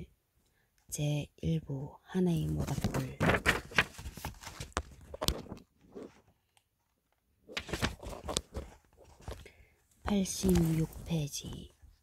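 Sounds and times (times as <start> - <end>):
book pages rustling: 2.4 - 6.6, 7.4 - 12.0.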